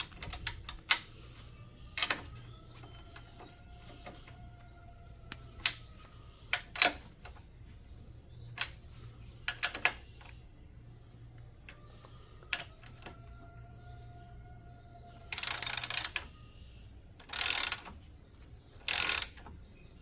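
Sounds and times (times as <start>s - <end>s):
ratchet wrench clicking: 0.0s - 1.1s, 1.9s - 2.4s, 15.3s - 16.3s, 17.2s - 18.0s, 18.8s - 19.5s.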